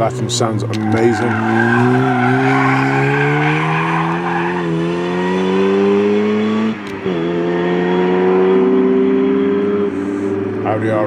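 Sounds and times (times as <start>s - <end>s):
car engine accelerating hard: 0.0s - 11.0s
tyre squeal: 0.8s - 4.8s.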